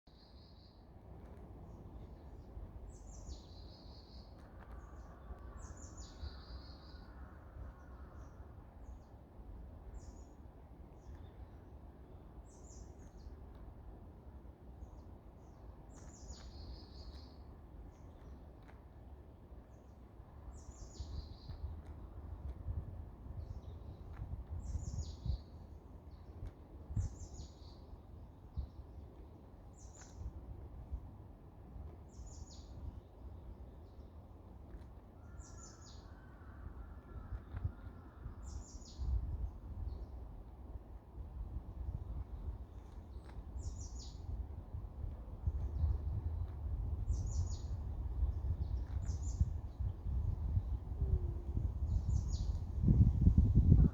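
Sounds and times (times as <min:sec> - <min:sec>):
steady low rumble: 0:00.9 - 0:53.9
songbirds singing trills: 0:01.6 - 0:13.5, 0:14.8 - 0:18.8, 0:19.6 - 0:30.4, 0:32.0 - 0:40.7, 0:41.4 - 0:53.9.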